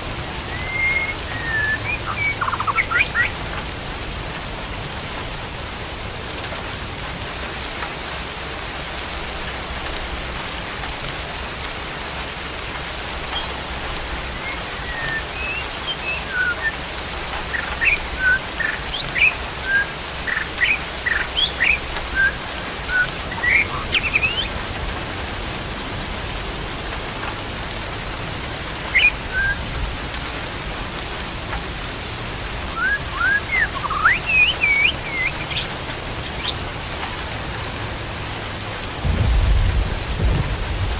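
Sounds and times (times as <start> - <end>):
rain hiss: 0.0 - 40.9
small songbird chirping: 0.4 - 4.8, 12.4 - 24.6, 28.9 - 29.7, 32.7 - 36.7.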